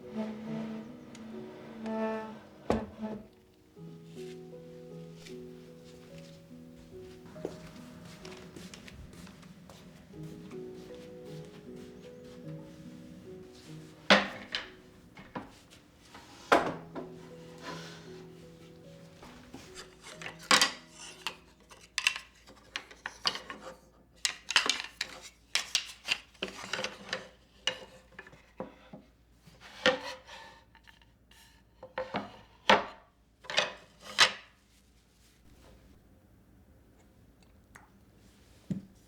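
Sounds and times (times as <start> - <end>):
scrubbing and rubbing: 0.0 - 3.3
kitchen items knocking and clinking: 16.4 - 17.2.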